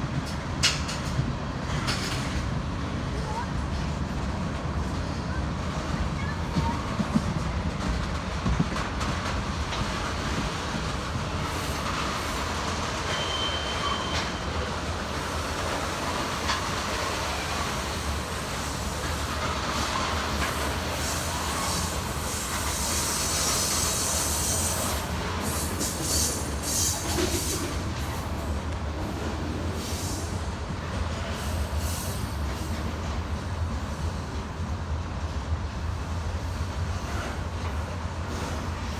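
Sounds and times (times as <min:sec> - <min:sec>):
train wheels rumbling on rail: 0:00.0 - 0:38.9
wheels clicking and hissing: 0:08.2 - 0:34.2
high wheel squeal: 0:13.0 - 0:14.7.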